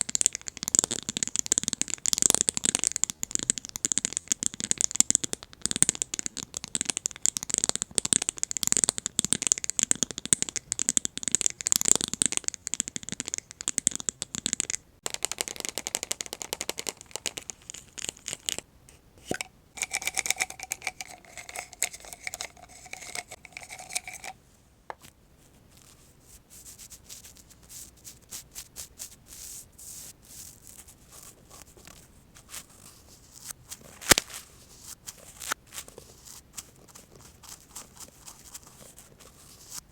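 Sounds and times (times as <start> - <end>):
brush strokes: 19.2 - 24.4
scratching and tapping rhinestone plate: 19.3 - 24.4.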